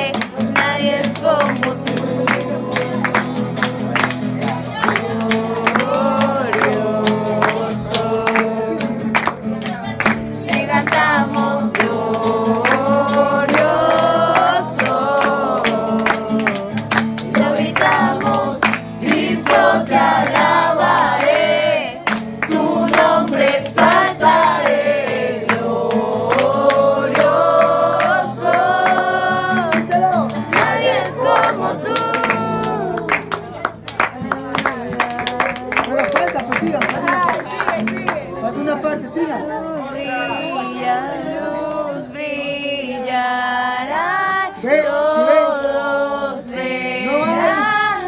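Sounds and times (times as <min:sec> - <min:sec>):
group of voices singing: 0:00.0 - 0:36.1, 0:37.0 - 0:48.0
sharp rhythmic taps: 0:00.0 - 0:38.2.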